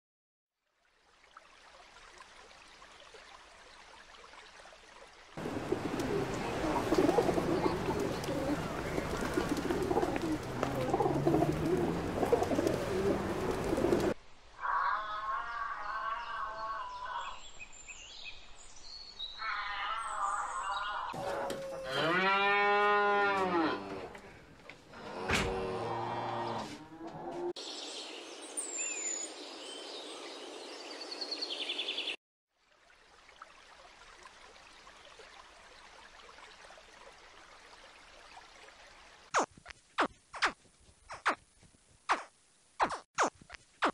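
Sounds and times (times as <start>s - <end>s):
outdoor hiss: 5.3s - 14.8s
pigeons cooing: 5.4s - 14.2s
cow mooing: 21.2s - 24.2s, 25.0s - 27.5s.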